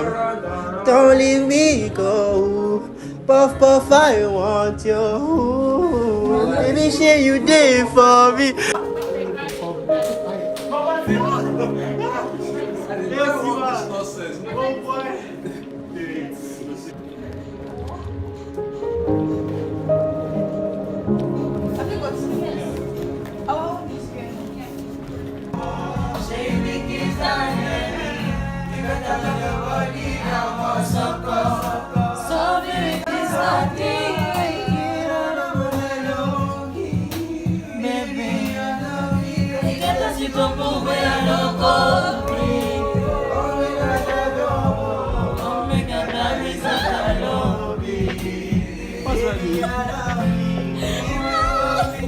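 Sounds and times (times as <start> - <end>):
voices singing in harmony: 18.4 - 52.0
backing track with beat: 25.5 - 52.0.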